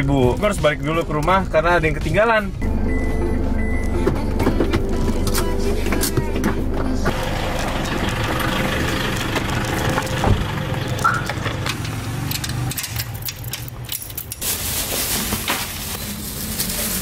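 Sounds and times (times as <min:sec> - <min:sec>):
car engine idling: 0:02.6 - 0:12.5.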